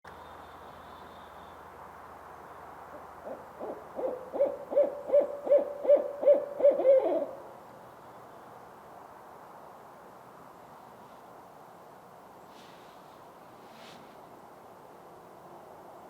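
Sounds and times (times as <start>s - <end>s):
owl hooting: 2.9s - 7.5s.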